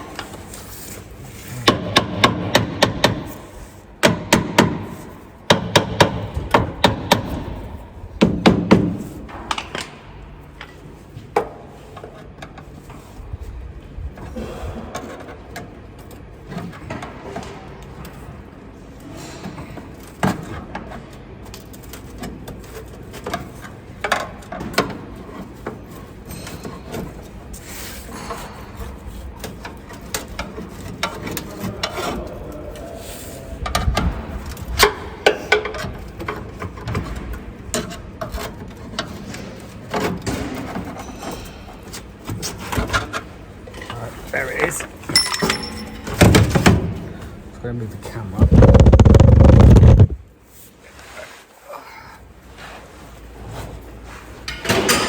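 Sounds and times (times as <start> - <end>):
rapid hammer strikes on metal: 1.6 - 9.0
knocks and clunks: 48.4 - 50.2.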